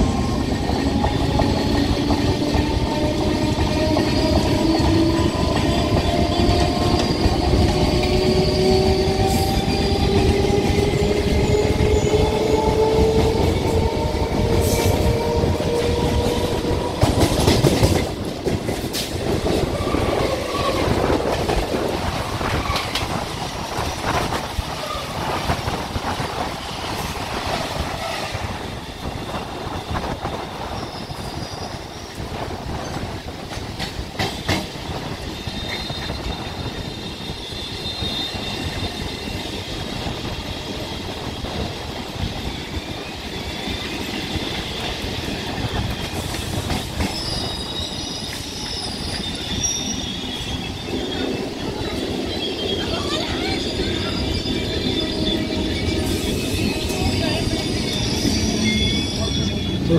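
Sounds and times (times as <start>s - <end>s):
passing train rush: 0.0s - 59.9s
train rumble with clickety-clack: 0.0s - 59.9s.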